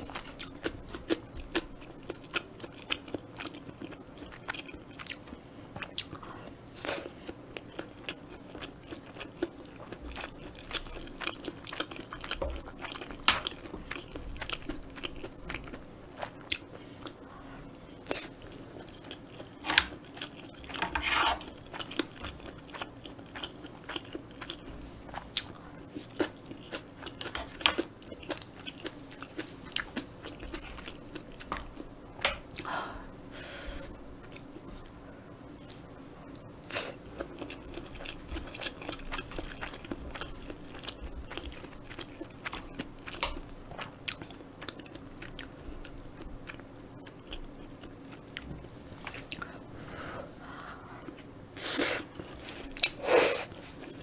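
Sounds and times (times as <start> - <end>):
chewing with wet mouth clicks: 0.1 - 6.2, 7.2 - 17.2, 21.4 - 32.6, 37.1 - 49.5, 52.2 - 53.0.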